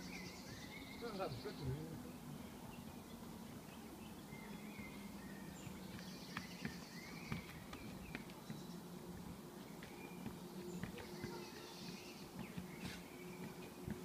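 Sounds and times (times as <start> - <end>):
birds chirping: 0.0 - 14.0
steady low hum: 0.0 - 14.0
unicycle knocking on concrete steps: 5.8 - 14.0.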